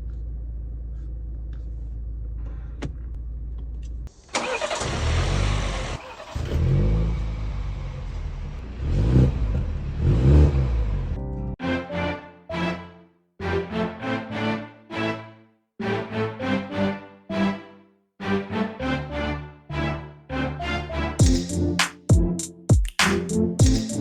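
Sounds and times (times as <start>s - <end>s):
car engine starting and revving: 3.3s - 11.2s.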